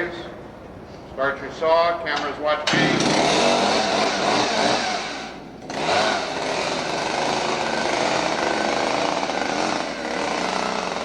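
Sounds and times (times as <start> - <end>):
chainsaw revving: 2.8 - 11.0.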